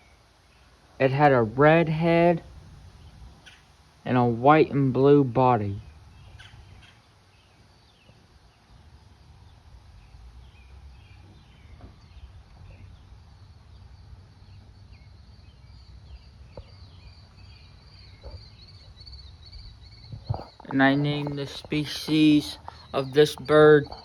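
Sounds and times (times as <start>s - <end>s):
low background rumble: 1.0s - 6.8s
insects trilling: 12.9s - 24.0s.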